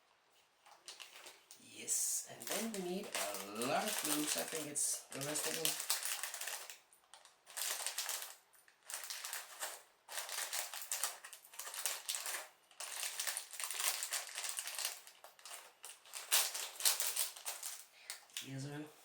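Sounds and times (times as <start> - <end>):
hands rummaging plastic bricks: 7.5 - 17.9.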